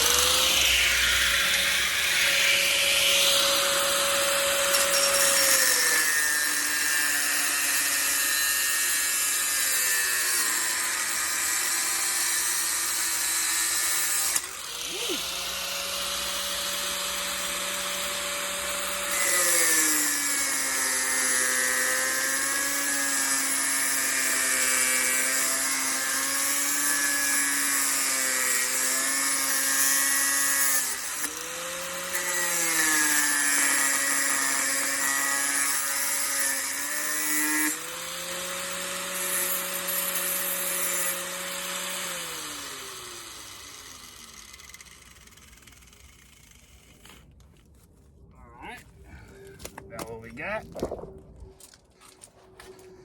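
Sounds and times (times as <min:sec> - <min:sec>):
grinder wheel hissing through metal: 0:00.0 - 0:20.3
angle grinder motor whine: 0:00.0 - 0:47.2.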